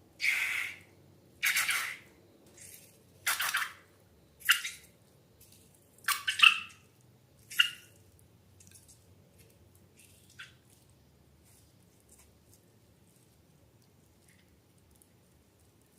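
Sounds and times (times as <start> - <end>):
slime squelching: 5.4 - 15.9.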